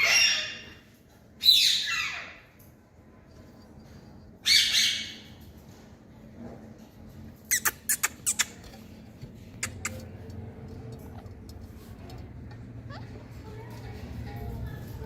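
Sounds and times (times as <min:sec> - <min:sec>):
parakeet squawk: 0:00.0 - 0:00.8, 0:01.4 - 0:02.4, 0:04.4 - 0:05.3.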